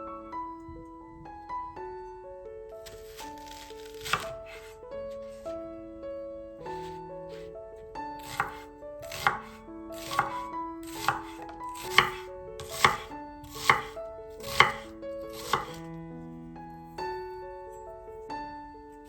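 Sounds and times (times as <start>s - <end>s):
soft background music: 0.0s - 19.0s
knife chopping on cutting board: 2.9s - 4.7s, 8.2s - 15.8s.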